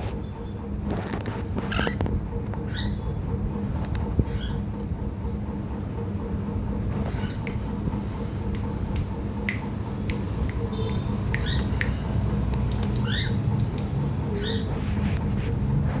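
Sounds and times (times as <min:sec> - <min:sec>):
steady low hum: 0:00.0 - 0:16.0
small pet chirps and clicks: 0:07.2 - 0:14.7.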